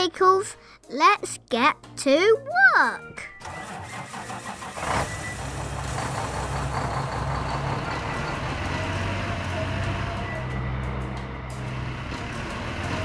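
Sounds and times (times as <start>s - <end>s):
heavy vehicle engine rumble: 3.4s - 13.0s.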